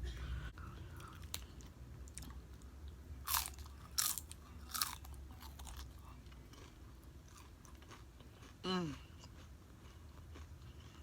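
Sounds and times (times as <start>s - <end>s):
chips crunching: 3.2s - 8.5s
chewing: 3.3s - 11.0s.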